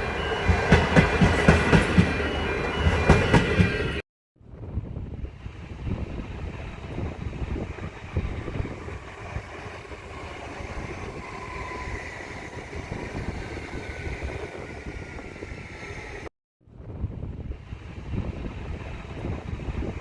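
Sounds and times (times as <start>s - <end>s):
train rumbling past: 0.0s - 4.0s, 5.4s - 16.3s
wind buffeting microphone: 4.4s - 20.0s.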